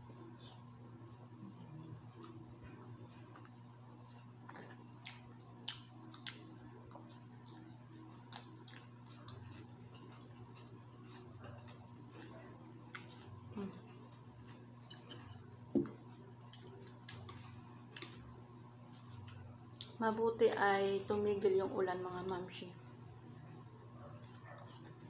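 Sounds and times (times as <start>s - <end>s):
faint steady hum: 0.0s - 25.0s
wet chewing smacks and clicks: 4.5s - 13.4s.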